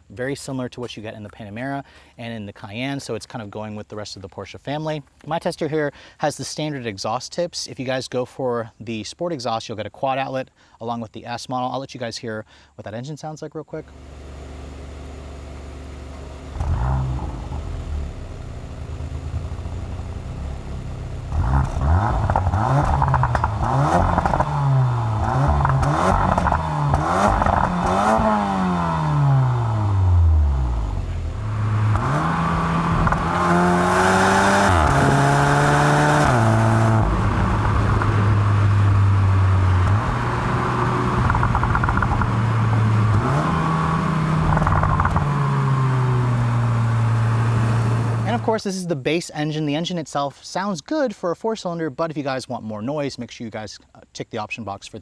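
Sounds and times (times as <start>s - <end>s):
car engine revving: 13.9s - 48.5s.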